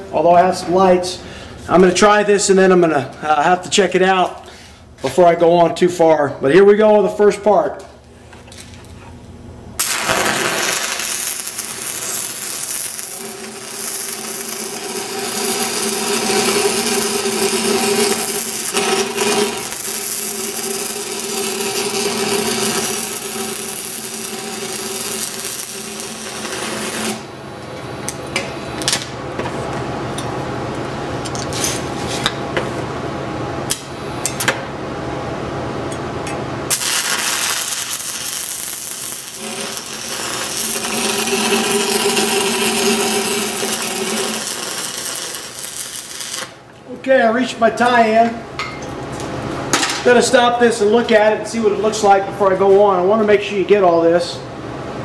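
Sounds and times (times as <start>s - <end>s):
welding arc crackling: 9.8s - 28.3s, 36.7s - 46.8s.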